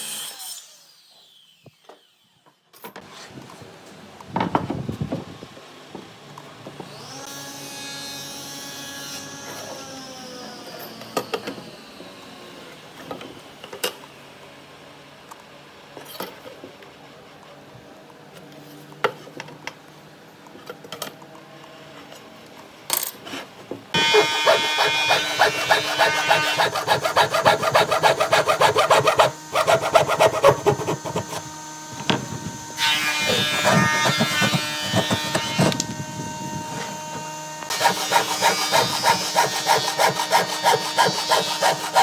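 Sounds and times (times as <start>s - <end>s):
tool scraping wood: 24.0s - 35.9s, 37.7s - 42.0s.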